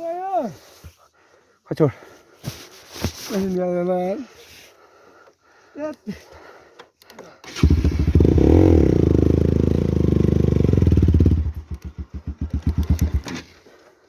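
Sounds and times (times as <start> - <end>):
motorcycle engine revving: 7.5 - 13.5.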